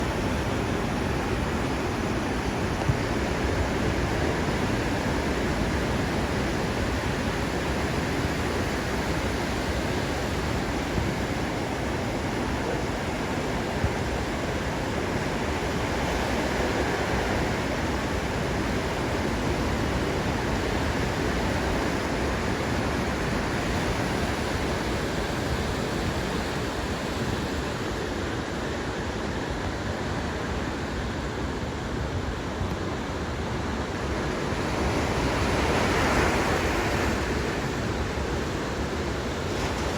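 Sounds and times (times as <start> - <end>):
ocean surf breaking: 33.5 - 39.9.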